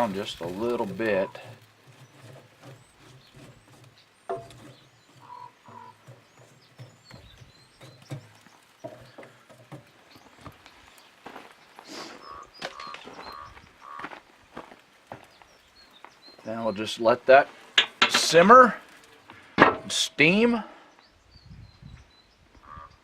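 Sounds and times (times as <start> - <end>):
faint bird chirps: 2.6 - 9.2, 11.8 - 14.1, 20.9 - 23.0
light knocks and handling noises: 17.5 - 20.0.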